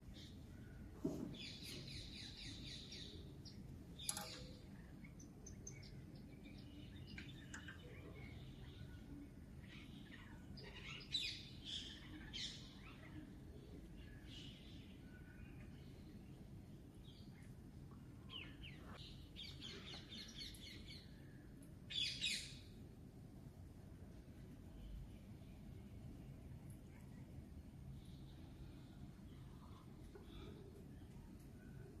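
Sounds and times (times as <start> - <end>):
birds chirping and twittering: 0.0 - 22.9.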